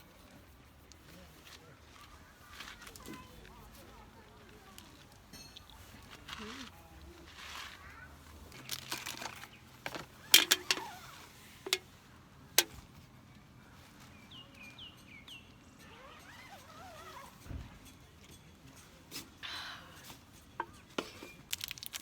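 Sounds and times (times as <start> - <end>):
sharp clicks and knocks: 9.0 - 10.9.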